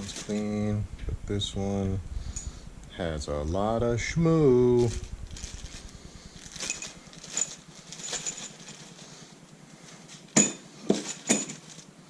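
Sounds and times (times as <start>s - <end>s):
sharp metal clanks: 10.3s - 11.7s
metal parts clicking and tapping: 10.3s - 11.9s.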